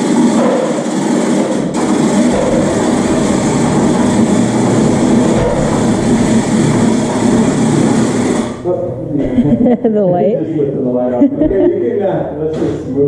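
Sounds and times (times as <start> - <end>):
machine engine running loud: 0.0 - 9.7.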